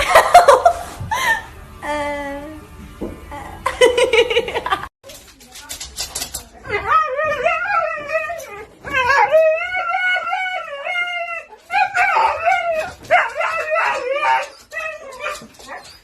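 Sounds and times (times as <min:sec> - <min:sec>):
dog howling: 0:06.9 - 0:15.8.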